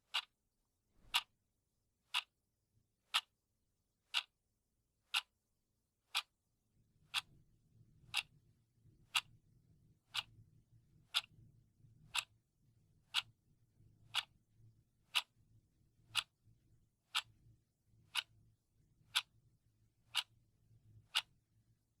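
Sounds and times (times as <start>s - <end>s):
clock ticking: 0.1s - 0.3s, 2.1s - 2.3s, 3.1s - 3.3s, 4.1s - 4.3s, 5.1s - 5.3s, 6.1s - 6.3s, 8.1s - 8.3s, 12.1s - 12.3s, 14.1s - 14.3s, 15.1s - 15.3s, 16.1s - 16.3s, 17.1s - 17.3s, 18.1s - 18.3s, 19.1s - 19.3s, 21.1s - 21.3s.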